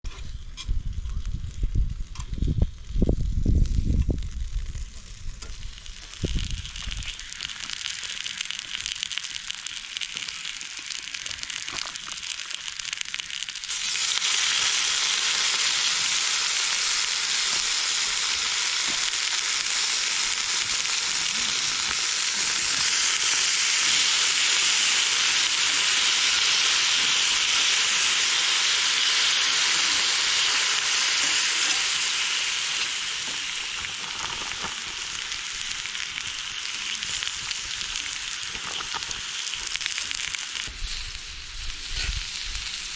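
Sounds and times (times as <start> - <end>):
faint fire crackle: 0.0 - 42.9
food sizzling on hot surface: 0.1 - 42.9.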